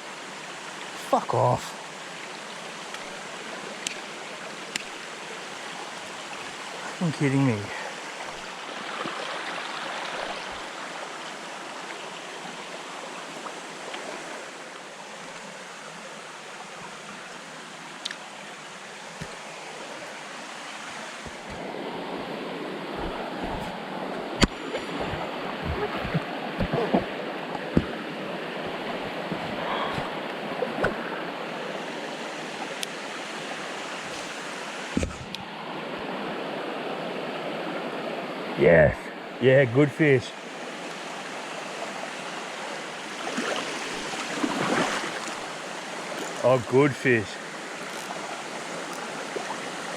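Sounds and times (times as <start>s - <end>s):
creek water running over rocks: 0.0s - 49.9s.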